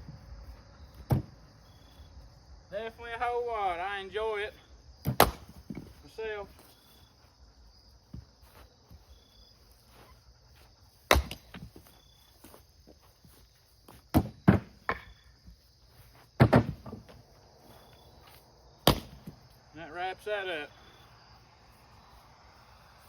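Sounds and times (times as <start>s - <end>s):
crickets chirping: 0.0s - 23.0s
splitting tool striking wood: 5.0s - 5.5s, 18.8s - 19.2s.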